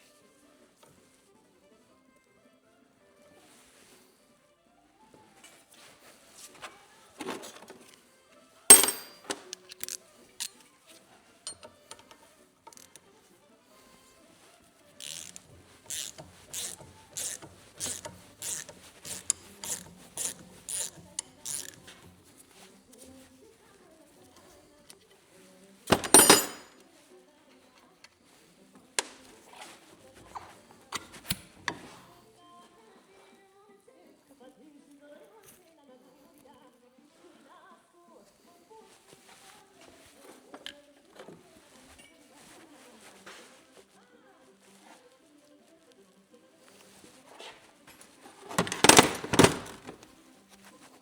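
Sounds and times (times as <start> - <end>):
loud metal clank: 8.7 - 9.4
metal clanking with ring: 8.7 - 9.5, 25.9 - 26.7
light metal clinks and taps: 8.7 - 10.6, 11.5 - 13.0, 25.9 - 26.8
metal parts clicking and clinking: 8.7 - 10.6, 11.5 - 13.0, 15.0 - 22.2, 25.9 - 26.8, 48.5 - 50.0.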